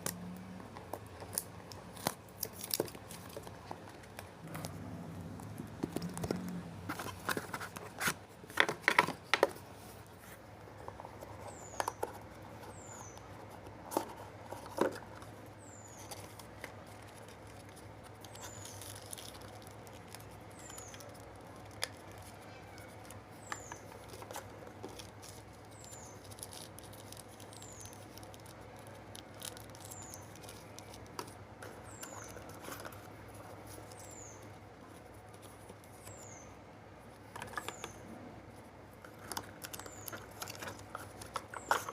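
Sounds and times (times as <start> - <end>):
packaging clicks and taps: 37.3 - 38.0, 39.0 - 41.9.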